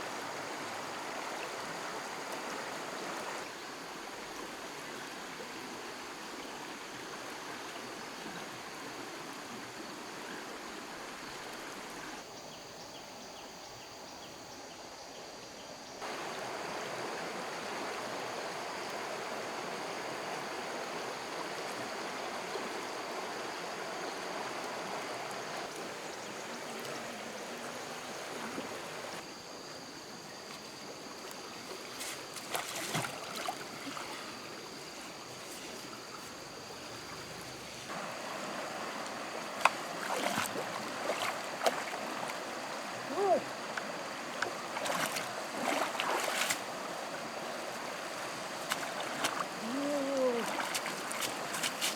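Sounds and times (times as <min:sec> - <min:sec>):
stream water rushing: 0:00.0 - 0:12.2, 0:16.0 - 0:51.9
knocks or splashes: 0:32.0 - 0:34.3, 0:39.4 - 0:47.0, 0:47.7 - 0:51.9.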